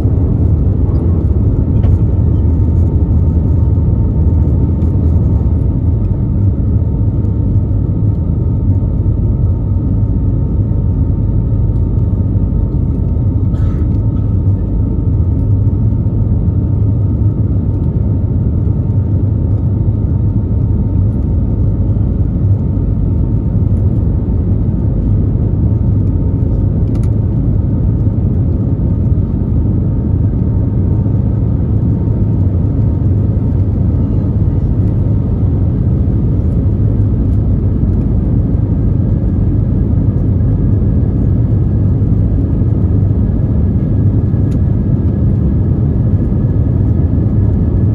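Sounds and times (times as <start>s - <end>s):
airplane cabin engine rumble: 0.0s - 47.9s.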